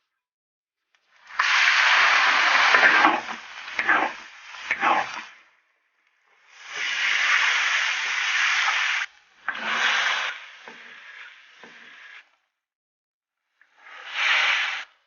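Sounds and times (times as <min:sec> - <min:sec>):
food sizzling in hot oil: 0:01.3 - 0:05.3.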